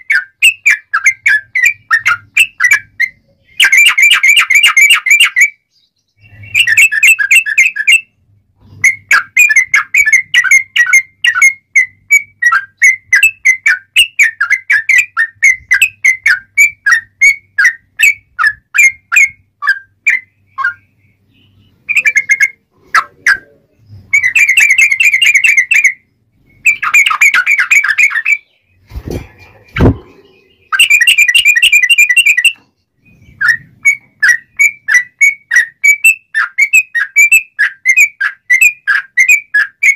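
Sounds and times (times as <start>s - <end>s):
bird singing whistled notes: 0.0s - 28.9s, 29.6s - 39.9s.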